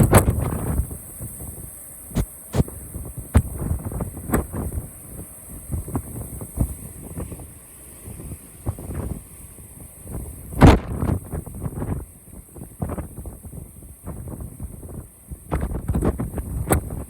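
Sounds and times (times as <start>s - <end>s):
strong wind buffeting microphone: 0.0s - 5.0s, 8.1s - 17.0s.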